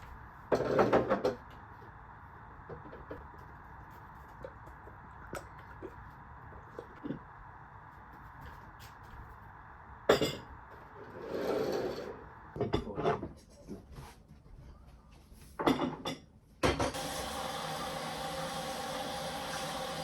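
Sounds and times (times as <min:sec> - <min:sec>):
dishes and cutlery clattering: 0:15.6 - 0:16.3
tap water running: 0:16.9 - 0:20.0.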